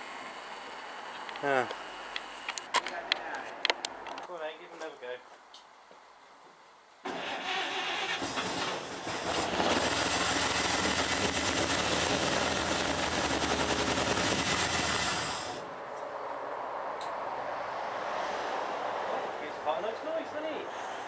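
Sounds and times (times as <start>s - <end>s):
pickup engine running roughly: 8.2s - 15.6s.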